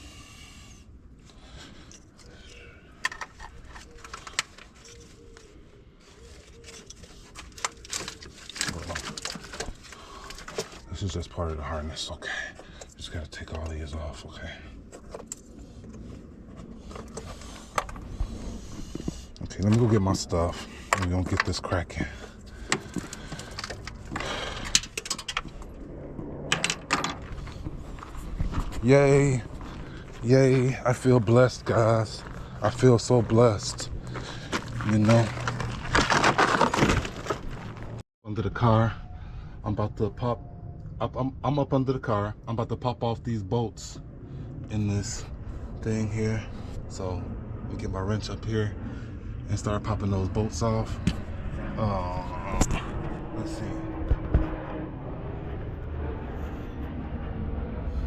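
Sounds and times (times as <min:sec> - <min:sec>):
plastic connectors clicking and rattling: 0:03.0 - 0:04.8, 0:07.4 - 0:10.7
tools clicking and clanking: 0:03.0 - 0:05.0, 0:22.6 - 0:25.7.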